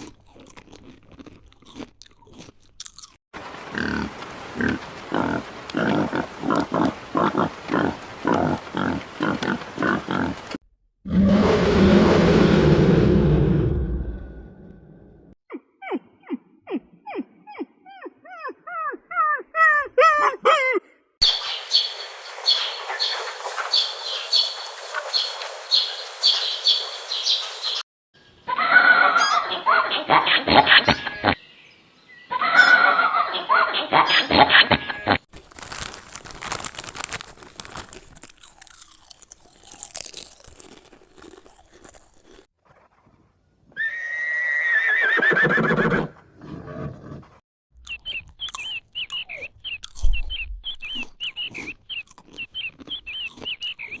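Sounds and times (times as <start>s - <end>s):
crunching chewing clicks: 0.0s - 3.2s, 34.4s - 42.5s, 47.8s - 54.0s
bird calling: 28.4s - 35.2s, 47.9s - 54.0s
horse whinnying: 43.7s - 47.3s
small animal chirping: 47.8s - 54.0s.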